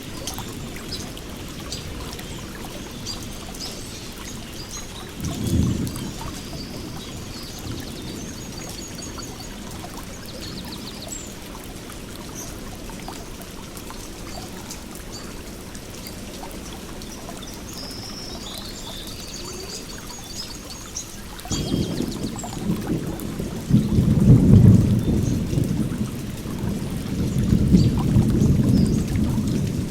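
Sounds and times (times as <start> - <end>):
stream water trickling: 0.0 - 29.9
small birds chirping: 0.2 - 11.5, 13.9 - 26.0.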